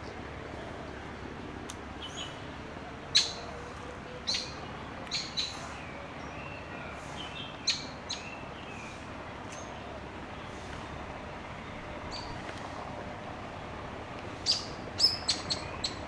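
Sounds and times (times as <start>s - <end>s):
steady low background noise: 0.0s - 16.0s
birds chirping sharply: 4.2s - 12.4s, 14.4s - 16.0s.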